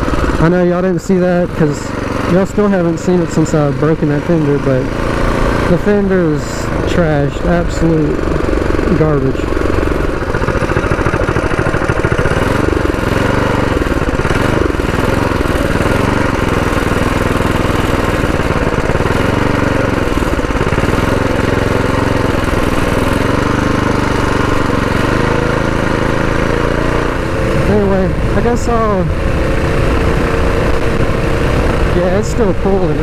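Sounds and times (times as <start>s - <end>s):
small engine revving: 0.0s - 33.0s.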